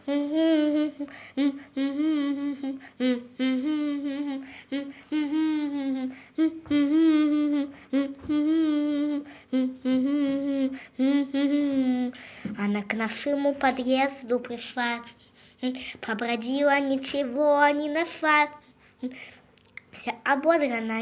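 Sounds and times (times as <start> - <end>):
child humming a melody: 0.0 - 12.2.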